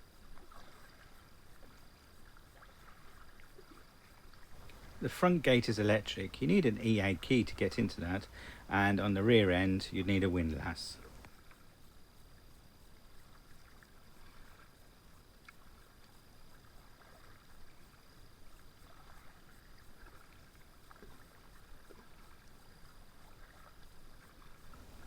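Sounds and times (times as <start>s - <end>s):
paddle splashes on water: 0.2s - 6.4s
water dripping: 4.6s - 10.0s.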